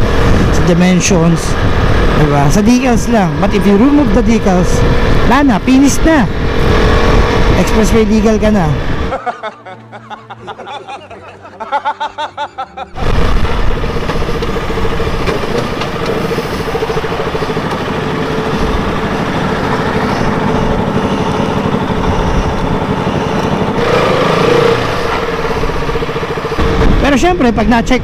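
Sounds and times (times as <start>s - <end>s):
wind rushing over helmet microphone: 0.0s - 9.1s, 19.9s - 28.0s
motorcycle engine running: 0.0s - 9.2s, 13.0s - 28.0s.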